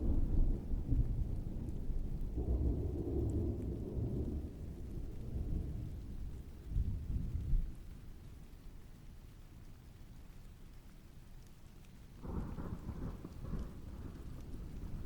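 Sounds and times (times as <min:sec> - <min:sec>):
distant thunder rumbling: 0:00.0 - 0:07.8, 0:12.2 - 0:15.0
faint rain: 0:00.0 - 0:15.0.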